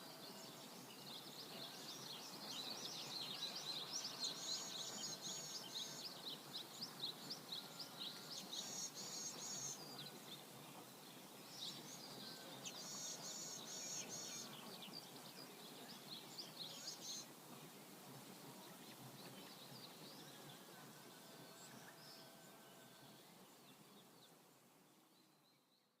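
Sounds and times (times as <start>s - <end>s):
small birds chirping: 0.0s - 18.0s
river water flowing: 0.0s - 24.9s.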